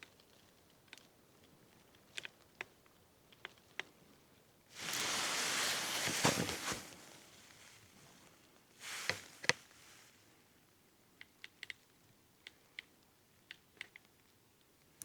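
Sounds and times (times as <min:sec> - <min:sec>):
rustling: 0:04.7 - 0:10.2.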